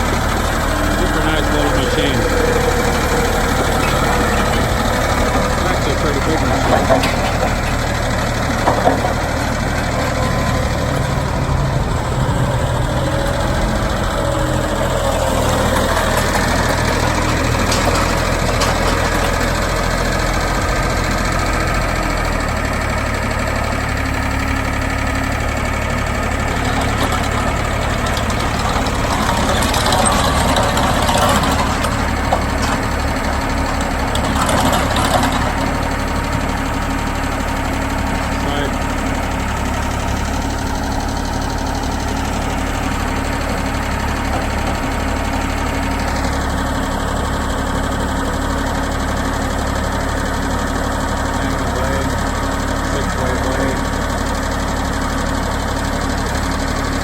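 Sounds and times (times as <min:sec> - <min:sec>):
trencher engine running: 0:00.0 - 0:57.0
knocks and clatters: 0:00.1 - 0:22.4, 0:26.0 - 0:36.8, 0:39.3 - 0:46.6.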